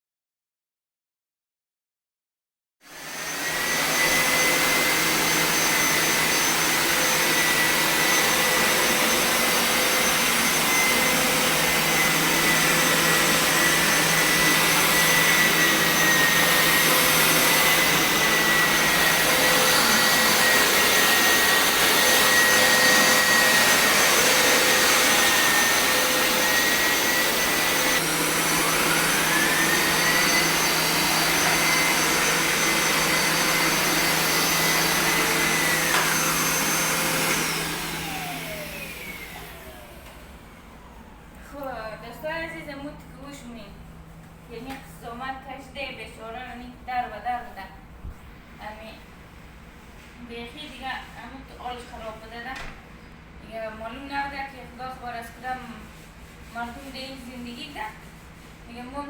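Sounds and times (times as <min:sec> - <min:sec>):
suction motor rushing and whining: 0:02.9 - 0:41.2.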